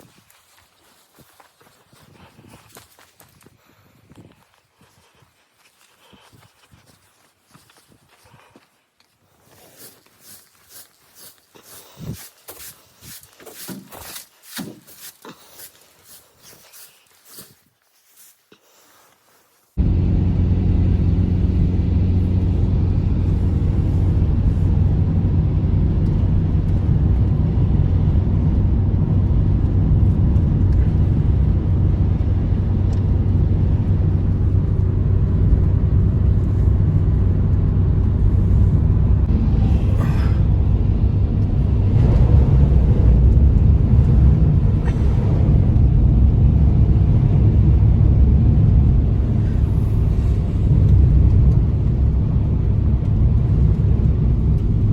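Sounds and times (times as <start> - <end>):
blizzard wind rumbling: 0.0 - 14.2, 19.8 - 54.9.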